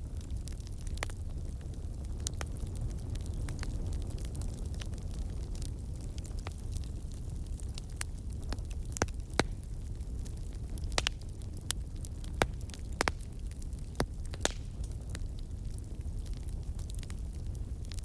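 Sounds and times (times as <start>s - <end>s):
low rumble of fire: 0.0s - 18.0s.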